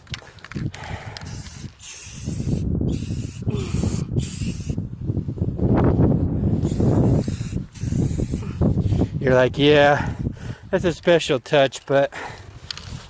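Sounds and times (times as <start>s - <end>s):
spray paint can hissing: 1.2s - 4.8s, 6.6s - 8.6s.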